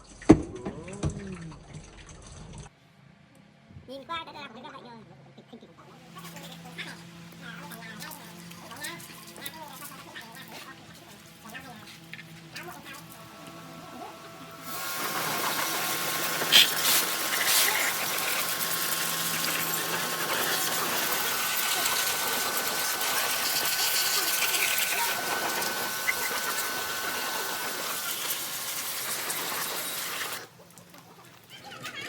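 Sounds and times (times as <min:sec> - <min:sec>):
motorised machine running: 0:06.1 - 0:31.6.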